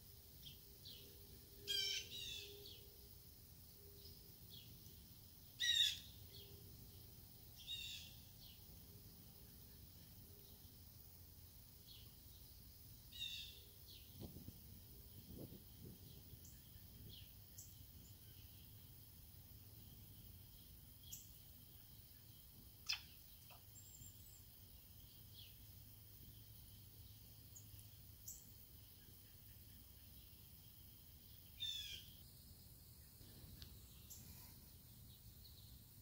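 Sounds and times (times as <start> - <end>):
bird chirps: 0.4 - 2.9, 3.8 - 7.0, 7.6 - 8.7, 20.1 - 32.2.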